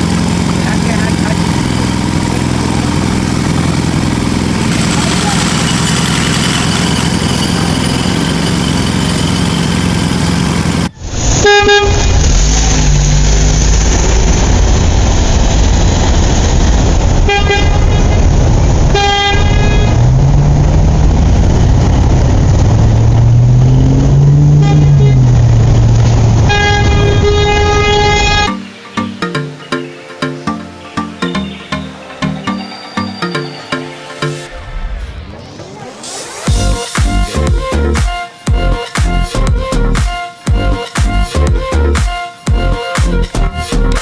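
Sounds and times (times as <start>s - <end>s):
vehicle engine running: 0.0s - 28.6s, 36.4s - 44.0s
vehicle horn tooting: 11.4s - 12.2s, 17.2s - 18.2s, 18.9s - 20.1s, 24.5s - 25.3s, 26.3s - 28.7s.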